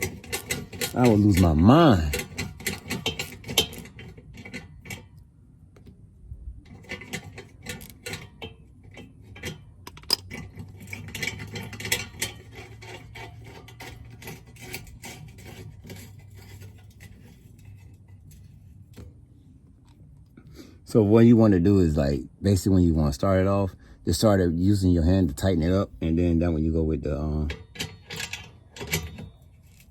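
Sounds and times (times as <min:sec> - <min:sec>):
small metallic clicks and clinks: 0:00.0 - 0:05.2, 0:06.7 - 0:18.6, 0:27.4 - 0:29.9
tools scraping metal: 0:00.0 - 0:05.2, 0:06.7 - 0:19.1, 0:25.0 - 0:29.9.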